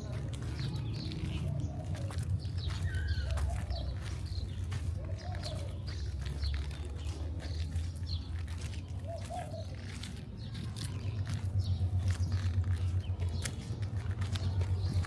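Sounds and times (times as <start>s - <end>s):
low city rumble: 0.0s - 15.0s
small birds chirping: 0.0s - 15.0s.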